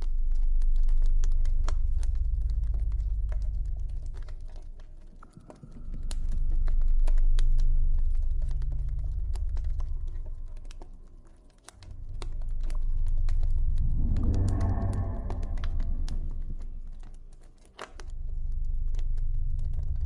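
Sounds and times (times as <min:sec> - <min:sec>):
low drone: 0:08.8 - 0:17.7.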